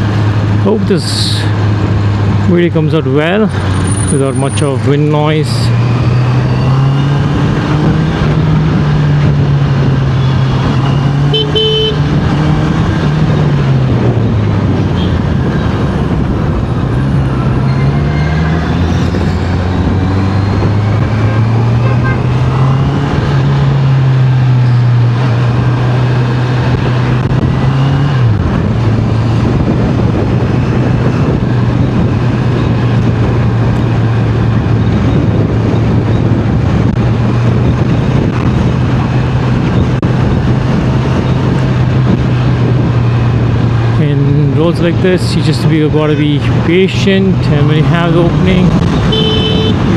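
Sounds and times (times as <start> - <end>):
wind noise: 0.0 - 49.9
motorcycle engine revving: 3.2 - 45.2, 45.8 - 49.9
horn toot: 10.3 - 12.1, 21.2 - 22.3, 49.1 - 49.9.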